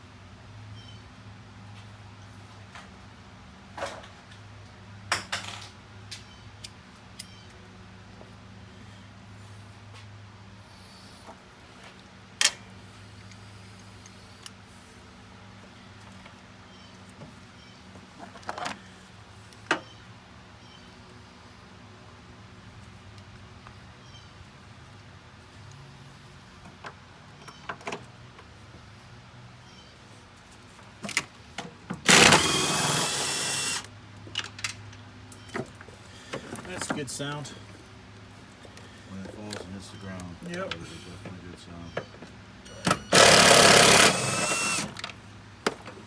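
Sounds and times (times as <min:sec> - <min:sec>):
power tool running: 0:32.0 - 0:33.9, 0:42.8 - 0:45.2.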